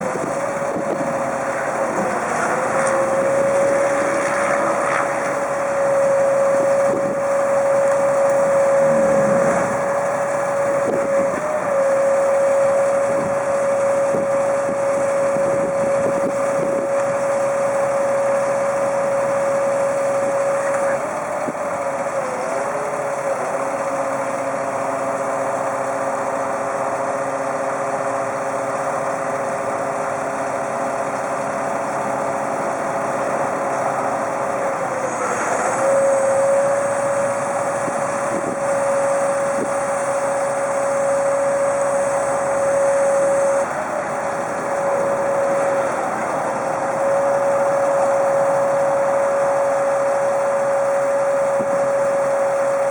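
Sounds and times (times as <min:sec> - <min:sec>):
truck engine whining: 0:00.0 - 0:52.9.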